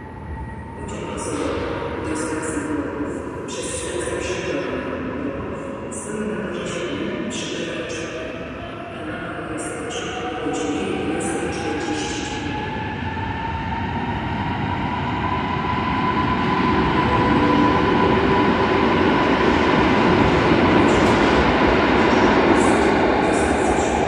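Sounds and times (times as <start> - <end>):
train rumble: 16.5 - 24.0.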